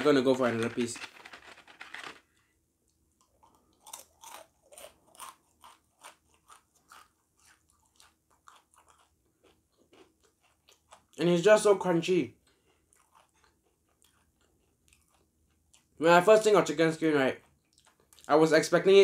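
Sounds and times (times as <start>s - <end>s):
cardboard box rustle: 0.4s - 2.2s
crunchy chewing: 3.2s - 11.2s, 12.3s - 16.0s, 17.4s - 18.3s.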